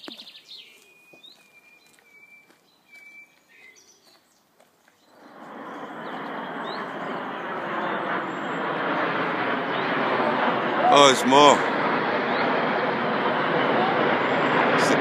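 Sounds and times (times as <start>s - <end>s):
birds chirping faintly: 0.0s - 9.1s
aircraft flying over: 5.0s - 15.0s.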